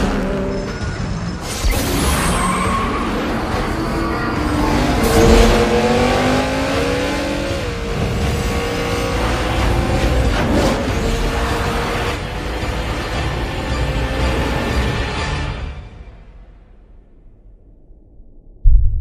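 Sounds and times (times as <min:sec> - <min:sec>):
car engine revving: 0:03.0 - 0:15.2.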